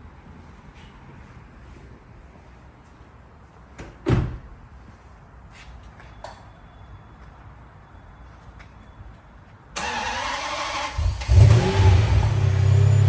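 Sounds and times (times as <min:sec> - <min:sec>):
car door thud: 0:04.0 - 0:04.5.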